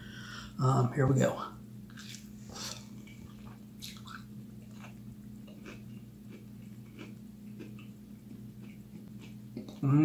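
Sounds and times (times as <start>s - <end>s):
low electrical hum: 0.0s - 10.0s
chewing mouth smacks: 1.9s - 9.9s.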